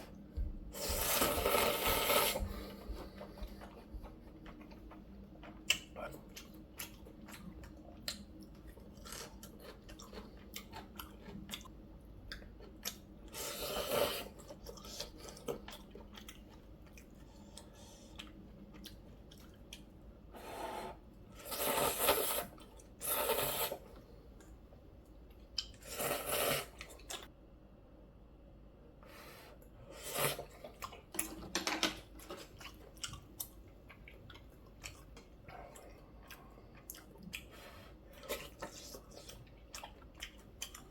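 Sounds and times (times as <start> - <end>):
person chewing noodles: 0.0 - 24.6, 25.2 - 27.3, 29.6 - 31.5, 32.1 - 40.9
slurping noodles: 0.8 - 3.0, 13.3 - 15.2, 20.4 - 24.0, 25.8 - 27.0, 29.9 - 30.6.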